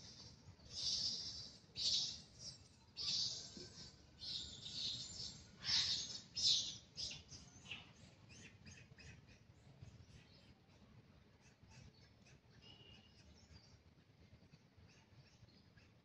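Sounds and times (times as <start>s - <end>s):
bird chirps: 0.0s - 9.4s
hissy high-pitched bird calls: 0.0s - 9.4s.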